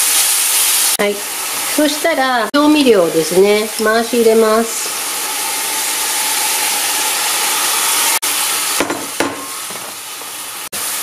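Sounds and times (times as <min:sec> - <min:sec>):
bean sprouts sizzling in a pan: 0:00.0 - 0:11.0.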